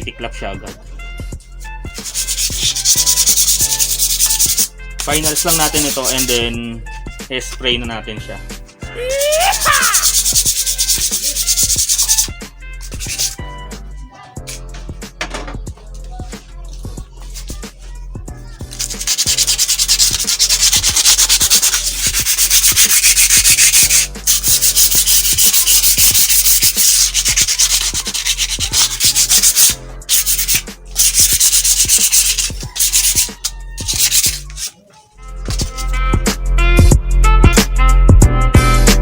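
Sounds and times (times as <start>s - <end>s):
sandpaper scrubbing metal: 1.6s - 6.5s, 8.8s - 13.4s, 14.4s - 14.7s, 16.2s - 18.0s, 18.6s - 34.8s, 35.5s - 36.0s.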